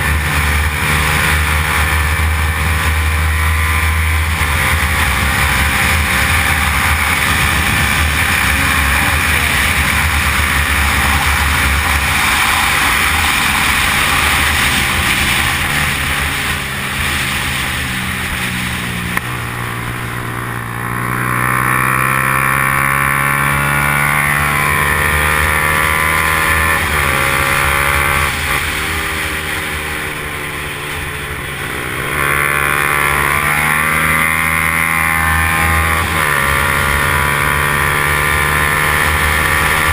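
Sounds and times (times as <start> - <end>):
wind rush: 0.0 - 21.4
motorcycle engine at high revs: 0.0 - 39.9.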